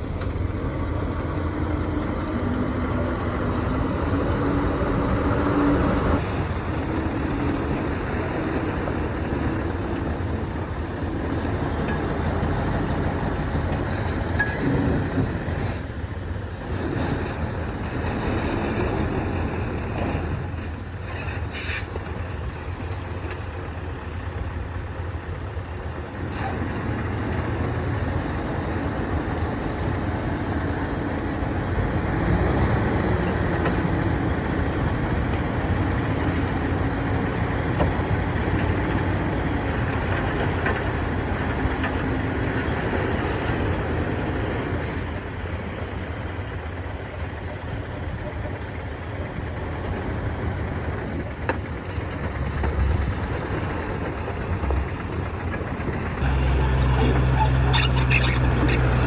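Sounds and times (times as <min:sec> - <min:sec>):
heavy diesel engine running: 0:00.0 - 0:59.0
short sharp hiss: 0:21.5 - 0:21.9.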